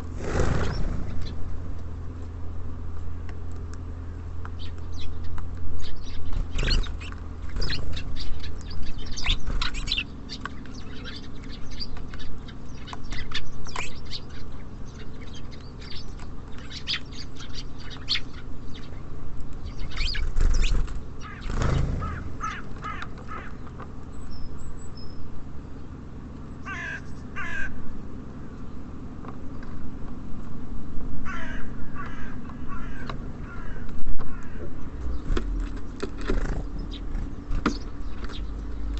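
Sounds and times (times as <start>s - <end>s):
birds chirping: 0.0s - 30.6s, 31.3s - 38.9s
low city traffic hum: 0.0s - 38.9s
harsh cawing calls: 21.2s - 23.6s, 26.6s - 27.8s, 31.2s - 34.8s.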